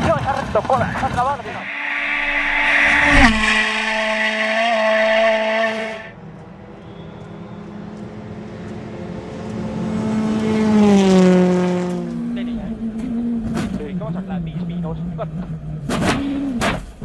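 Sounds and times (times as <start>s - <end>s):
rally car engine at high revs: 8.7s - 17.0s.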